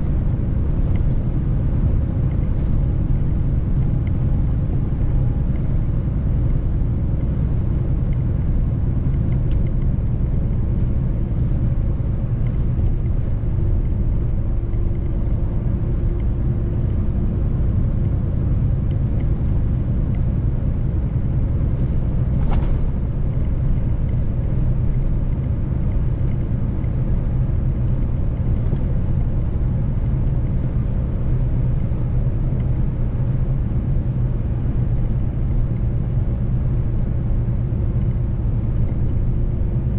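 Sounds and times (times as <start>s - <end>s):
truck engine and road rumble: 0.0s - 39.9s.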